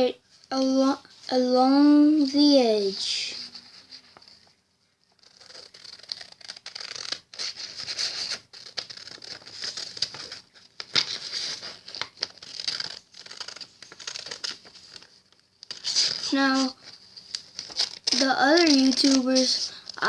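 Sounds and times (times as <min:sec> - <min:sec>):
paper rustling: 0:05.2 - 0:20.0
scissors cutting paper: 0:05.2 - 0:20.0.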